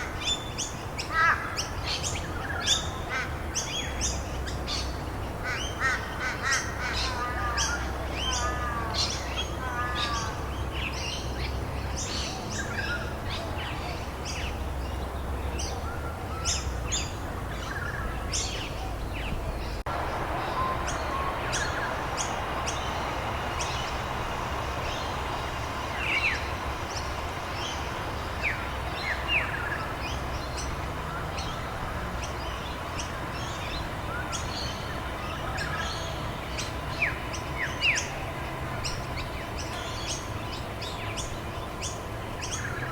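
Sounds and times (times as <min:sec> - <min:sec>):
small birds chirping: 0:00.0 - 0:42.9
rain hiss: 0:19.8 - 0:42.9.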